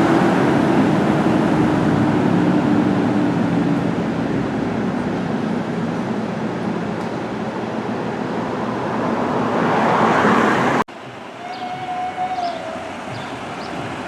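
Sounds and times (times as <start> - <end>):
fire truck diesel engine passing: 0.0 - 6.5
siren wailing: 11.4 - 13.2.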